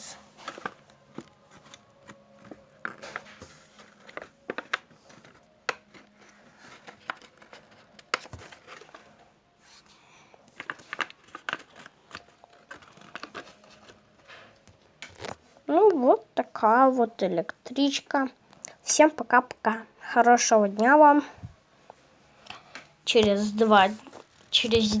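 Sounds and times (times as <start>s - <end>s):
paper rustling: 0.0s - 15.6s, 23.2s - 25.0s.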